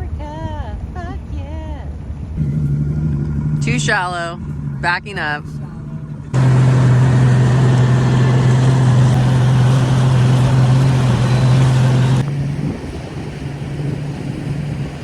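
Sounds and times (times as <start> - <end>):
outboard engine humming: 0.0 - 15.0
wind noise: 7.2 - 15.0.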